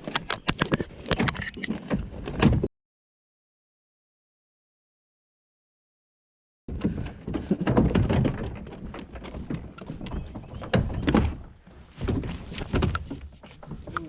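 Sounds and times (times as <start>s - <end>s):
knocks and thumps: 0.0s - 2.7s, 6.7s - 14.0s.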